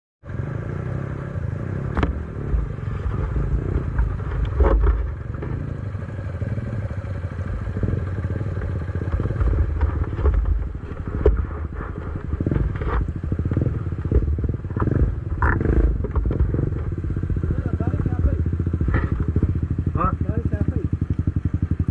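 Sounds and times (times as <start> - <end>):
motorcycle engine running: 0.2 - 21.9
sharp knocks and clatters: 1.9 - 5.8, 8.0 - 17.0, 18.8 - 19.6.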